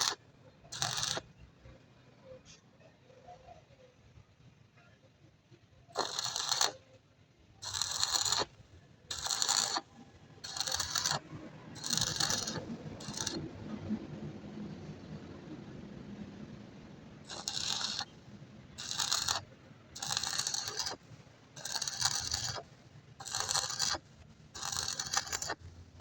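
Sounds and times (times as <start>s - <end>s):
metal scraping strokes: 0.8s - 1.2s, 6.0s - 6.8s, 7.6s - 8.5s, 9.1s - 9.8s, 10.4s - 11.2s, 11.8s - 13.4s, 17.3s - 18.2s, 18.8s - 26.0s.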